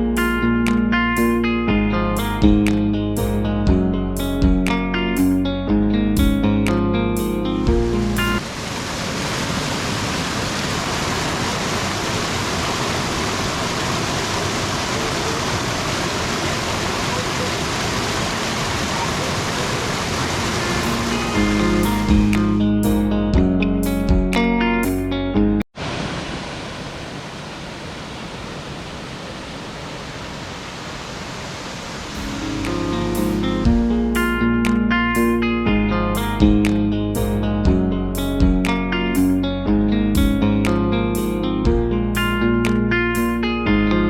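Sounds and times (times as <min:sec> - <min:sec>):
guitar music: 0:00.0 - 0:08.4, 0:20.6 - 0:25.6, 0:32.2 - 0:44.0
waterfall rushing: 0:08.4 - 0:22.4, 0:25.8 - 0:33.7.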